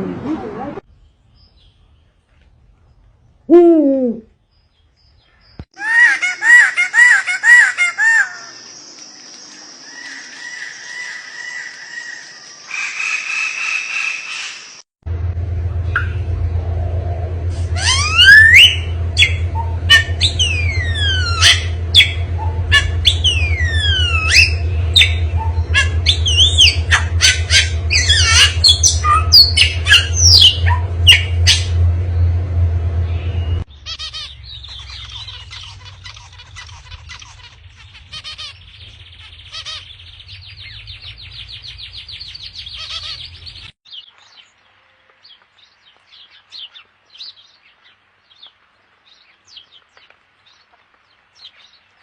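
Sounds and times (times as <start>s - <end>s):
birds squawking: 5.8s - 8.7s, 17.6s - 31.8s, 33.1s - 43.7s
steady low hum: 15.1s - 43.7s
birds chirping and whistling: 17.6s - 32.4s, 33.0s - 44.5s.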